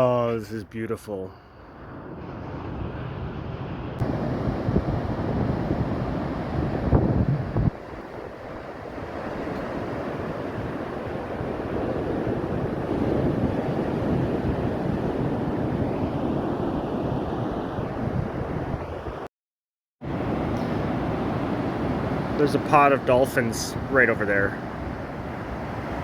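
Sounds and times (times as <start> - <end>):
ocean surf on beach: 1.7 - 19.3, 20.0 - 26.0
wind buffeting microphone: 2.0 - 19.3.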